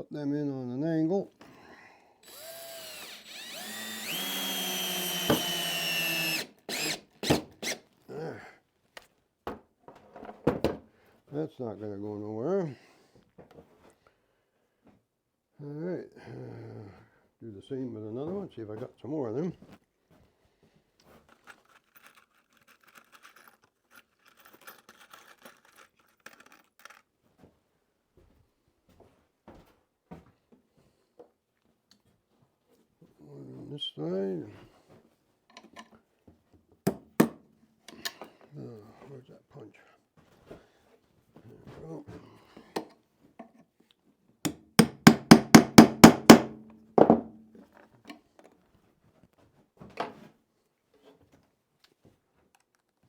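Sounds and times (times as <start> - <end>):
hammer striking a punch: 44.5 - 47.3.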